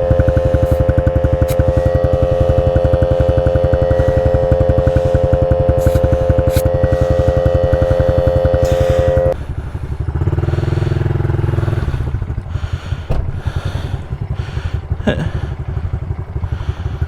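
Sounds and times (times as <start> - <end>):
air compressor whine: 0.0 - 12.0
motorbike engines idling: 0.0 - 17.0.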